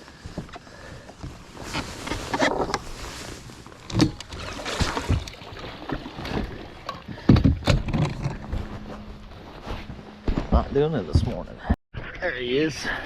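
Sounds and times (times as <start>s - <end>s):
rustling: 0.1s - 5.3s.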